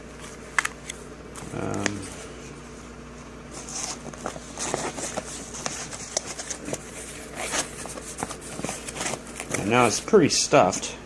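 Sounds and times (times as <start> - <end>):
backpack fabric rustling: 3.6 - 10.0.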